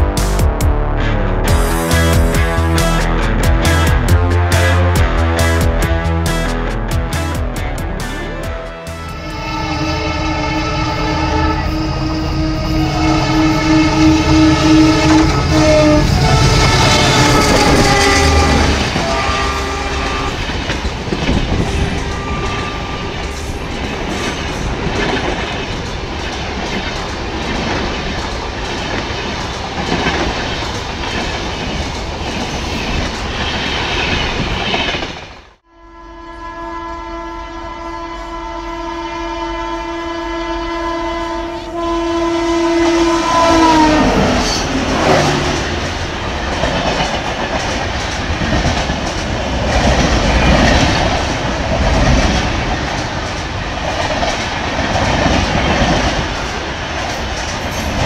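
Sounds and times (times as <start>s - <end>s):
locomotive horn chord: 0.8s - 20.6s, 21.5s - 24.3s, 35.6s - 45.9s
train coaches clickety-clack: 9.0s - 35.5s, 42.7s - 58.0s.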